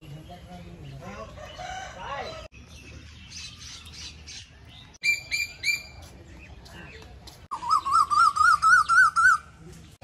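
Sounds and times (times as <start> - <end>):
long wavering bird call: 7.5 - 9.4.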